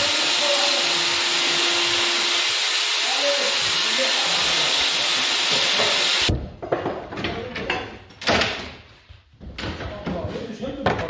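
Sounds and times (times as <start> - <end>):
knocks and clatter: 5.8 - 11.0.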